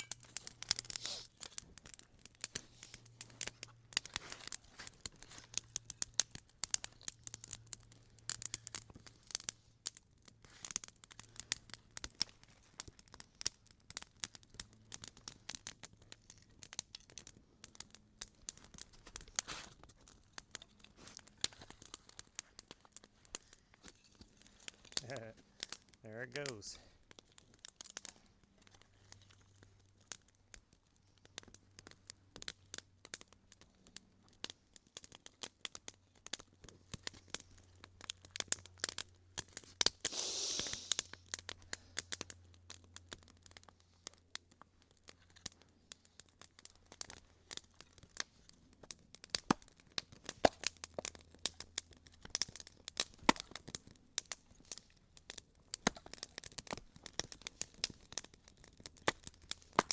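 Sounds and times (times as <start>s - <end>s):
campfire crackling and popping: 0.0s - 59.9s
fire hissing rush: 0.8s - 1.4s, 40.0s - 41.2s.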